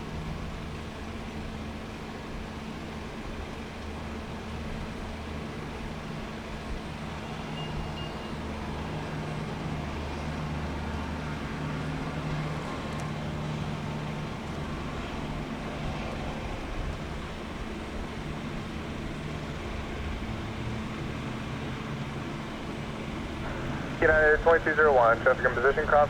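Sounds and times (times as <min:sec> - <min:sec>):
engine rumble: 0:00.0 - 0:26.0
constant hum and hiss: 0:08.6 - 0:26.0.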